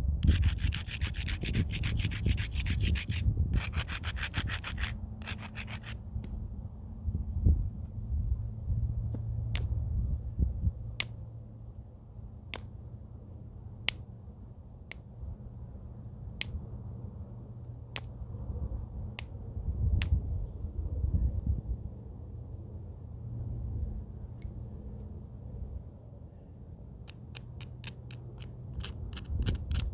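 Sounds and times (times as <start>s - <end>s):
stone striking stone clicks: 12.5s - 12.7s.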